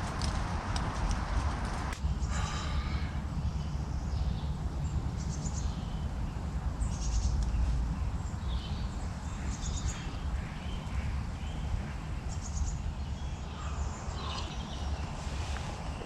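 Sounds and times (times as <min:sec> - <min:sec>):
steady low rumble: 0:00.0 - 0:16.0
harsh raspy bird calls: 0:09.3 - 0:14.9.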